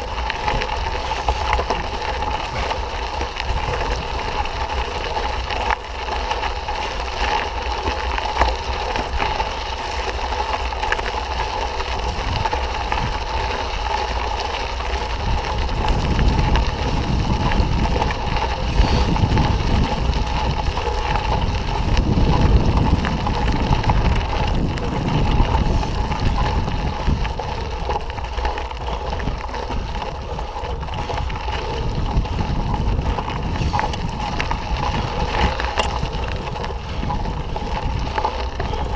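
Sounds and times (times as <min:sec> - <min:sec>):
wind rumbling on microphone: 0:00.0 - 0:38.9.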